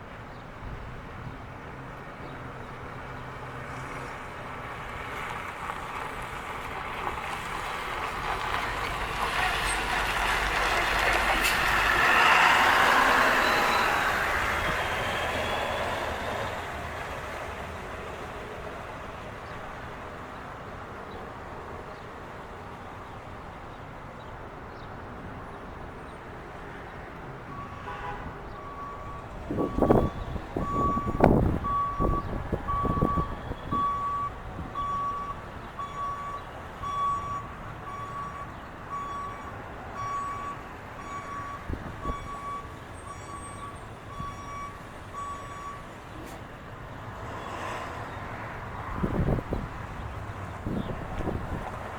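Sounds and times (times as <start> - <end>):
loud vehicle sound: 0.0 - 51.9
vehicle backup alarm beeping: 11.6 - 17.8, 27.5 - 46.4.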